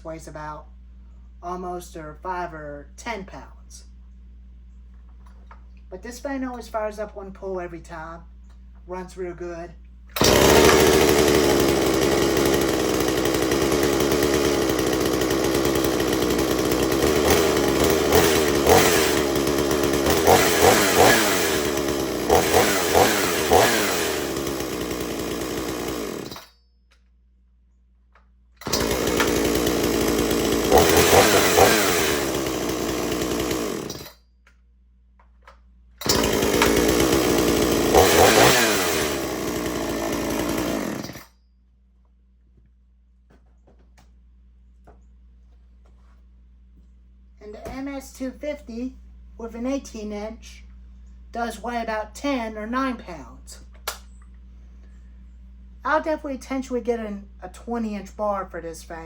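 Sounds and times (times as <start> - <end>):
chainsaw revving: 10.1 - 26.5, 28.6 - 34.2, 36.0 - 41.3.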